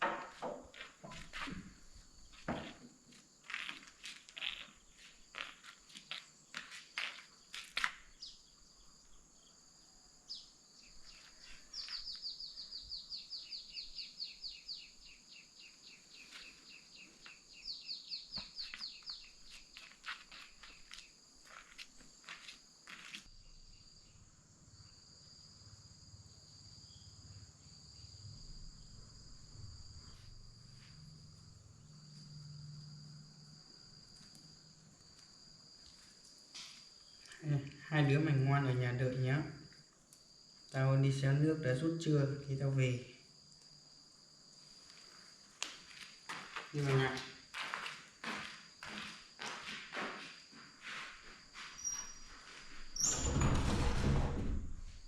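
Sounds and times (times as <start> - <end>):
insects chirring: 0.0 - 54.2
rapid insect chirps: 0.6 - 53.4.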